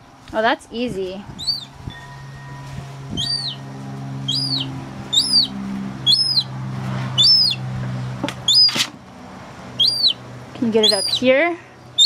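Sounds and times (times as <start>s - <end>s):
gull chick peeping: 1.4s - 2.0s, 3.1s - 6.5s, 7.1s - 8.9s, 9.8s - 11.3s.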